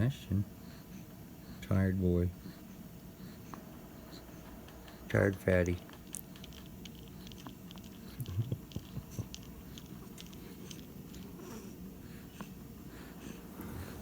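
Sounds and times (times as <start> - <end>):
pet mouth clicks: 4.6 - 11.3.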